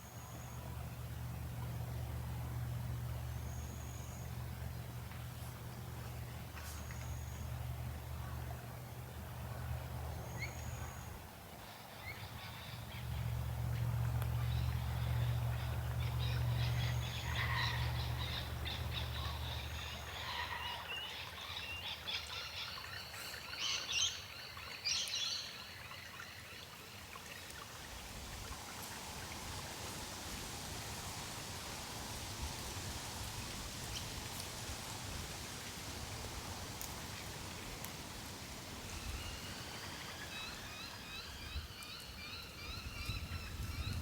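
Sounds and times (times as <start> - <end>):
low steady hum: 0.0 - 24.8
faint outdoor hiss: 0.0 - 44.0
birds calling and chirping: 12.0 - 25.5.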